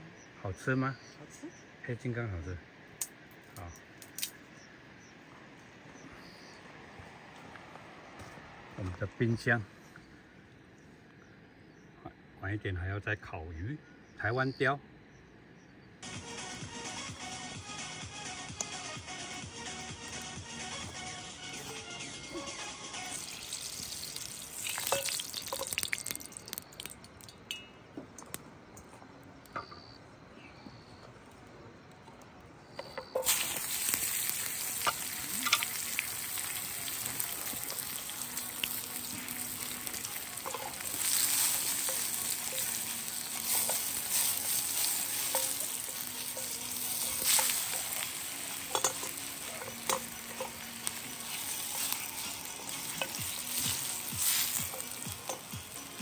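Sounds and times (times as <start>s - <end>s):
food sizzling in hot oil: 22.4s - 27.7s, 33.0s - 56.0s.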